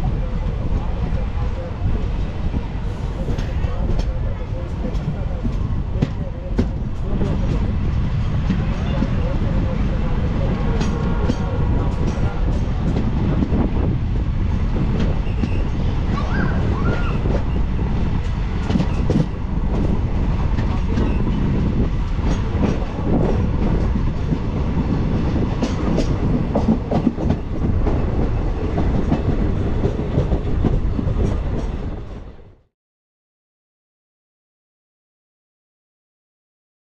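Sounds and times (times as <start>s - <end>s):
train wheels rumbling on rail: 0.0s - 32.6s
clatter over rail joints: 10.4s - 13.7s, 18.2s - 32.2s.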